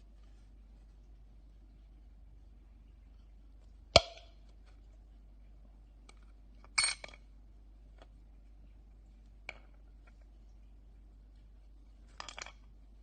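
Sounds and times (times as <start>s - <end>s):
small metal parts clinking: 6.8s - 7.2s.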